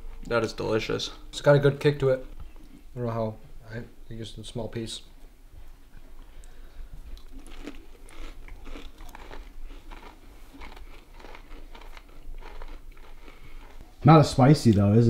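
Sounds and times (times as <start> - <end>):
people chewing crispy food: 5.6 - 14.0.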